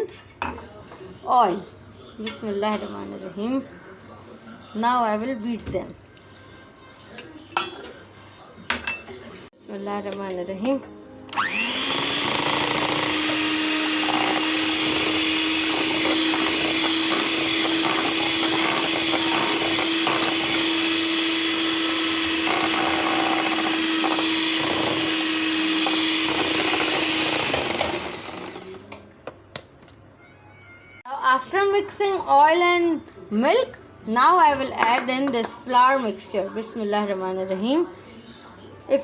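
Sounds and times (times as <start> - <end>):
electric mixer beating batter: 11.4 - 28.9.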